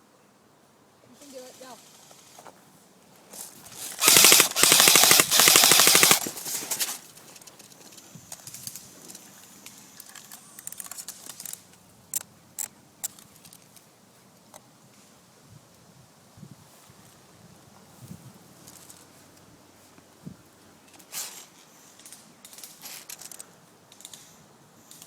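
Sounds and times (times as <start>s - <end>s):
airsoft gun firing bursts: 4.0s - 7.0s.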